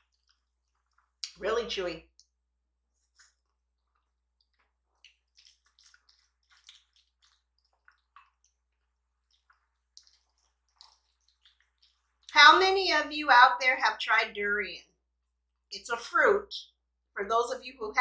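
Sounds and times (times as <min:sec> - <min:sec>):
wet chewing: 0:00.0 - 0:12.6.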